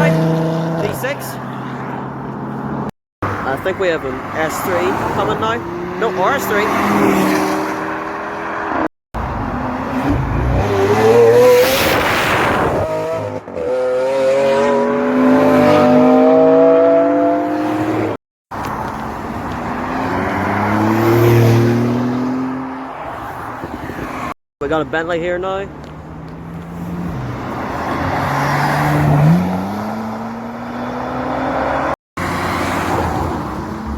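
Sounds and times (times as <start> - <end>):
car engines accelerating past: 4.2 - 18.2, 18.8 - 24.3.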